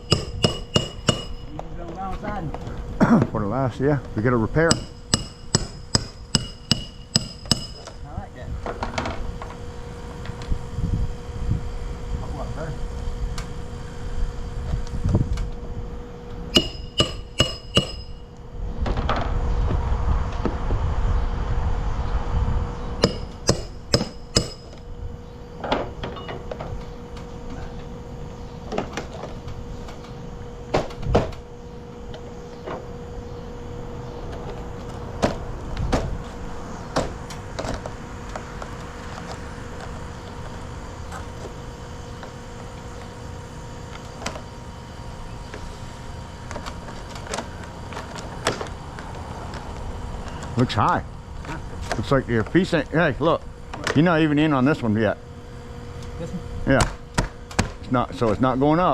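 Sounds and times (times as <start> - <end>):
hammer blows: 0.0 - 1.7, 4.6 - 8.0, 16.5 - 18.4, 23.0 - 24.8
steady hum: 0.0 - 58.9.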